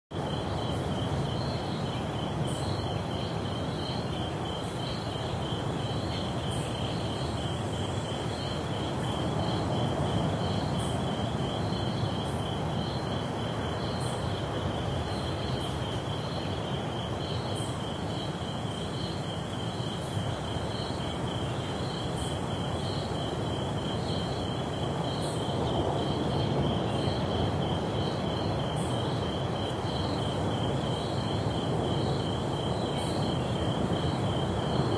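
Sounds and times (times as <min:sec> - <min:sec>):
insects trilling: 0:00.2 - 0:34.9
repeating insect chirp: 0:00.2 - 0:34.9.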